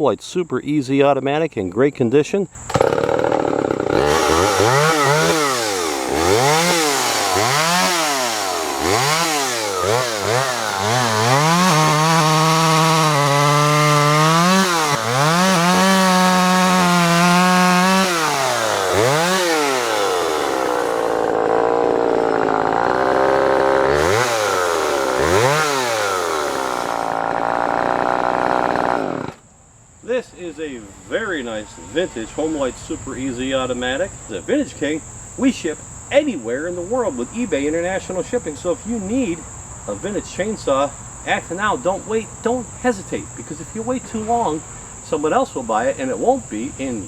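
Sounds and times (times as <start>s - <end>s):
chainsaw revving: 2.6s - 29.4s, 30.4s - 33.9s.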